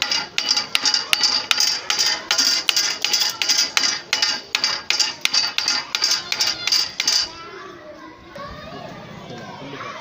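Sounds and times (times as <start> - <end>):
rapid metallic clanking: 0.0 - 7.4.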